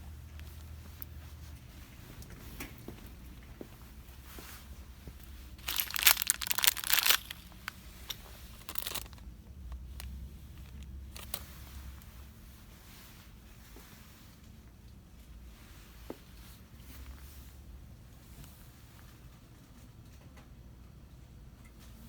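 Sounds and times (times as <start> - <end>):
plastic packaging crinkling: 5.6 - 9.3.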